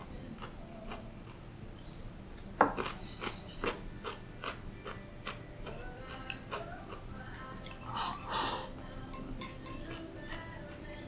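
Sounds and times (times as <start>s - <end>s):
crunchy chewing: 0.3s - 8.4s.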